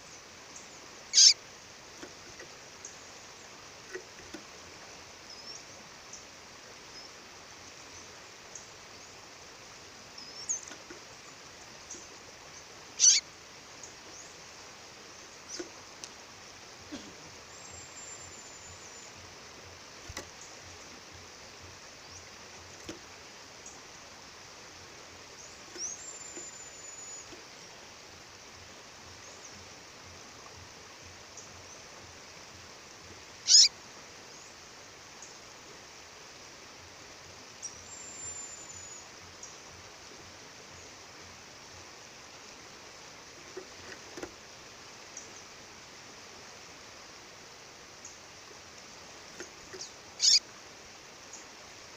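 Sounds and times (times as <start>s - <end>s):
bird high whistled calls: 1.1s - 1.4s, 13.0s - 13.2s, 25.8s - 27.4s, 33.5s - 33.7s, 37.6s - 39.0s, 49.8s - 50.4s.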